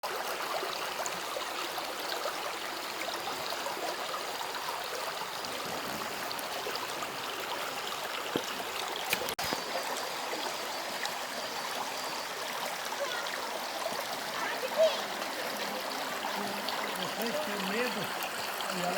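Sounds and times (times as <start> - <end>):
stream water rushing: 0.0 - 18.9.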